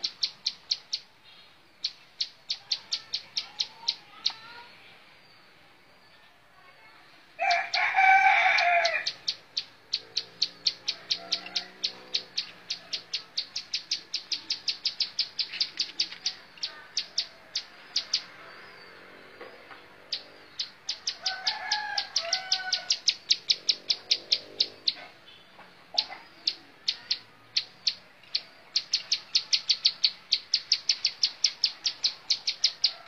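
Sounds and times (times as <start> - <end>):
rooster crowing: 7.4 - 9.2, 10.8 - 13.1, 21.0 - 23.1.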